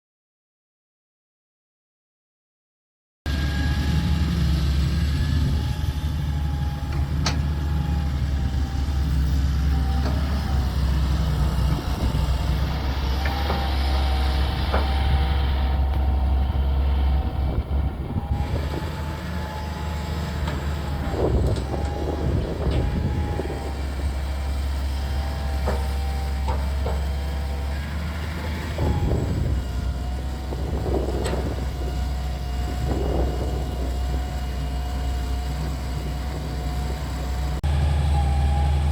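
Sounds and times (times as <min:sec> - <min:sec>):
excavator diesel engine running: 0:03.3 - 0:38.9
machine knocks and clanks: 0:25.6 - 0:27.3.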